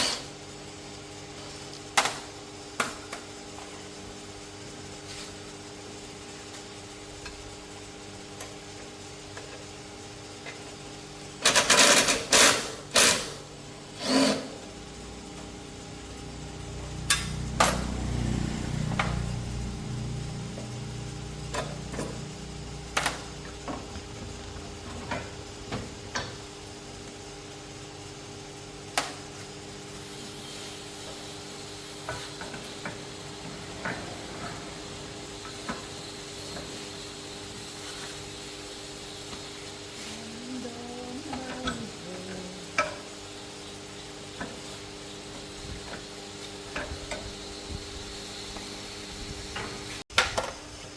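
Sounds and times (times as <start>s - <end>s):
steady hum: 10.0s - 44.2s.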